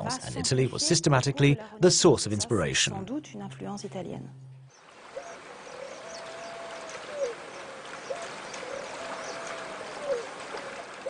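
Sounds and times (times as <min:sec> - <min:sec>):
bird long calls: 0:04.7 - 0:11.0.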